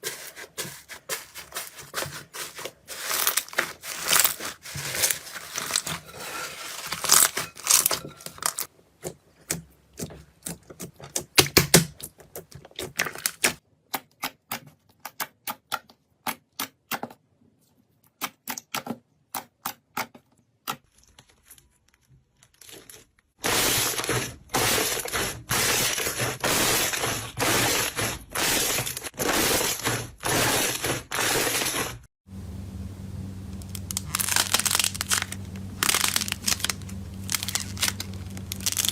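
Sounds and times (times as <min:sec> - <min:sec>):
slime squishing strokes: 0:00.0 - 0:11.3, 0:23.4 - 0:32.1, 0:33.6 - 0:38.9
slime crackling and popping: 0:33.6 - 0:38.9.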